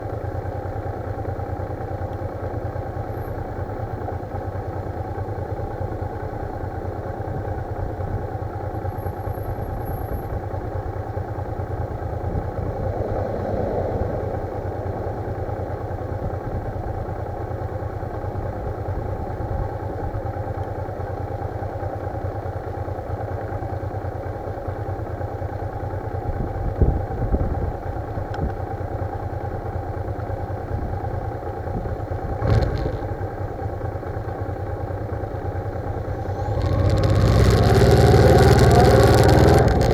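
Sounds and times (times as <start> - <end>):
motorcycle running: 0.0 - 39.9
wind buffeting microphone: 12.0 - 16.9.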